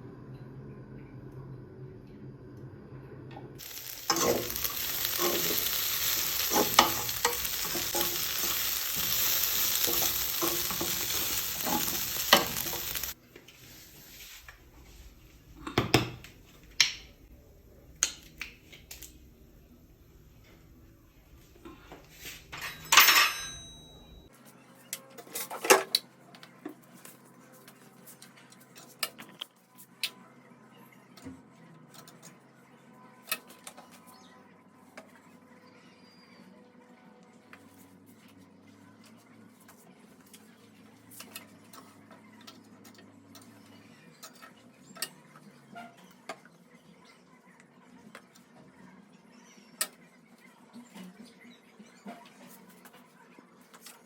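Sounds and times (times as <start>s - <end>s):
dishes and cutlery clinking: 22.5s - 24.2s.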